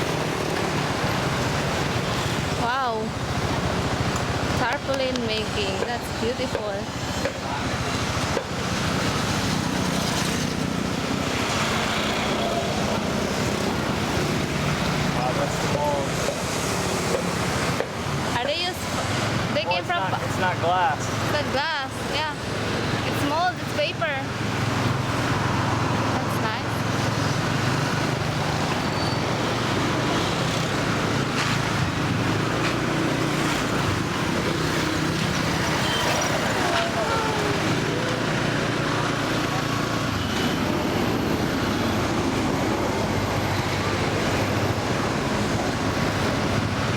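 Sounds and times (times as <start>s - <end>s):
scooter engine running: 0.0s - 18.1s, 22.3s - 46.9s
traffic and road noise: 0.0s - 46.9s.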